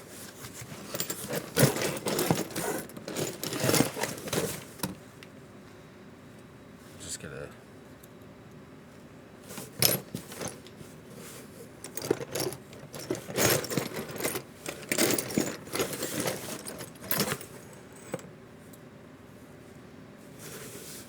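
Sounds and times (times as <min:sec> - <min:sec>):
tools clinking on a workbench: 0:00.6 - 0:05.0, 0:11.8 - 0:18.3.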